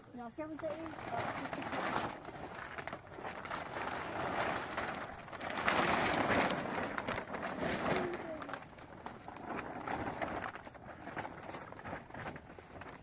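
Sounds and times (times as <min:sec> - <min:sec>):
heavy rain falling: 0:01.0 - 0:10.6.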